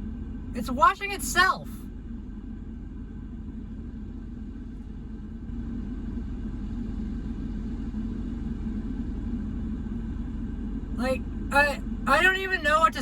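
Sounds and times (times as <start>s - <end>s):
car engine idling: 10.8s - 13.0s
car wash running: 11.0s - 13.0s.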